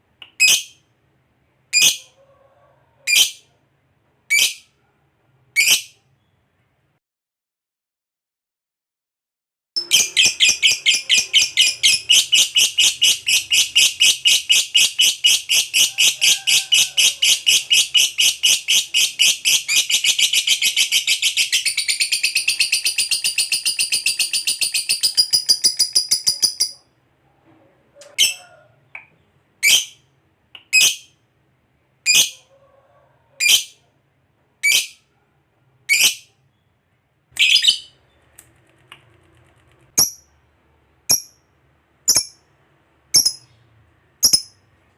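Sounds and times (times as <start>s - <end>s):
sharp bird chirps: 9.8s - 15.9s, 37.4s - 38.0s, 43.2s - 43.6s
bird chattering trill: 9.8s - 26.8s, 43.2s - 43.5s, 44.2s - 44.6s.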